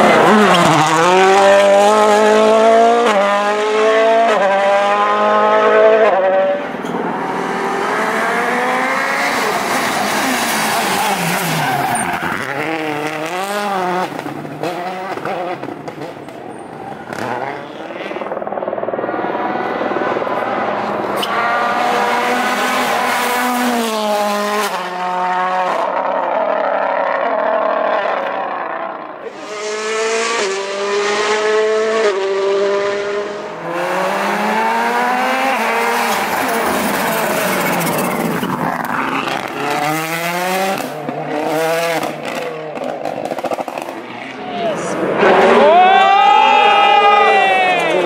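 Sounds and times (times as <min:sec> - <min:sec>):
rally car engine revving: 0:00.0 - 0:48.0.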